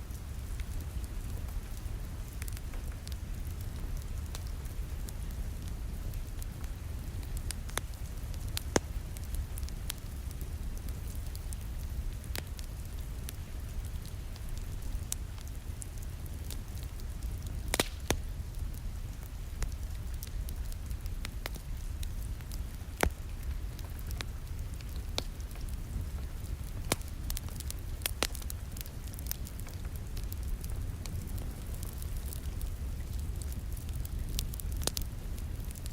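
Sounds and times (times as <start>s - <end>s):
steady low rumble: 0.0s - 16.0s
rain hissing against a window: 0.0s - 35.9s
wood fire crackling: 0.0s - 35.9s
sharp pops of fire: 7.2s - 10.4s, 12.2s - 18.3s, 19.2s - 35.9s.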